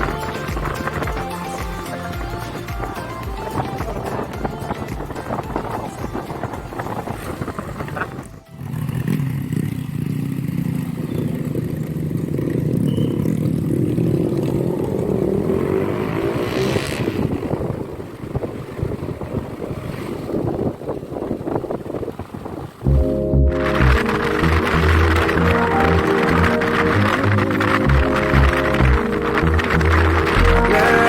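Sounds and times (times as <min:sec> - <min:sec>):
wind noise: 0:00.0 - 0:08.9, 0:13.6 - 0:31.0
motorcycle engine running: 0:00.0 - 0:19.8, 0:20.5 - 0:31.0.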